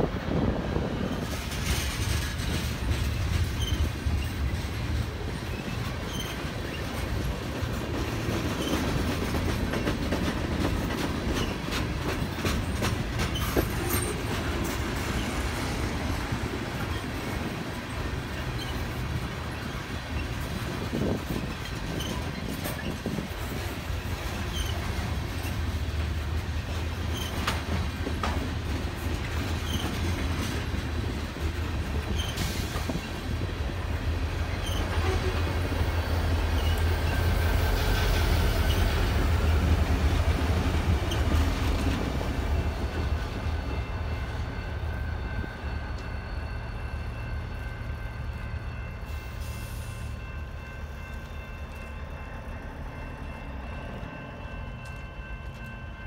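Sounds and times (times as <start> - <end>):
diesel locomotive engine rumble: 0.0 - 56.0
train wheels clicking over rail joints: 0.3 - 43.8.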